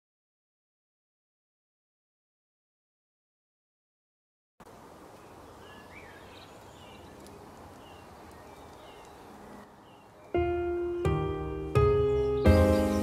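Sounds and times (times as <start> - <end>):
faint bird chirps: 5.1 - 10.4.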